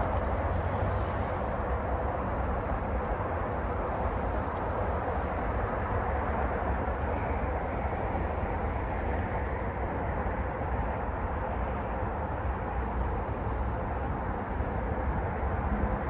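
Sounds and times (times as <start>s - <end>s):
tyre hiss on road: 0.0s - 1.8s
car driving rumble: 0.0s - 5.6s, 10.3s - 16.0s.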